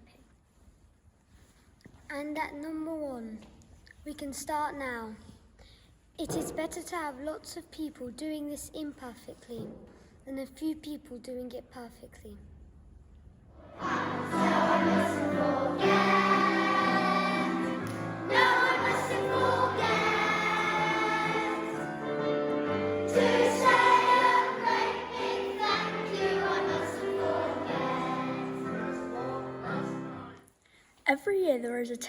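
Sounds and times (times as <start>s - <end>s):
choir singing: 13.6s - 30.4s
musical accompaniment: 13.7s - 30.4s.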